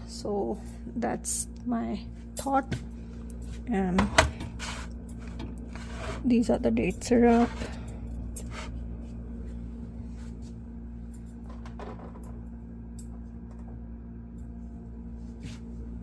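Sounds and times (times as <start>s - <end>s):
refrigerator low hum: 0.0s - 16.0s.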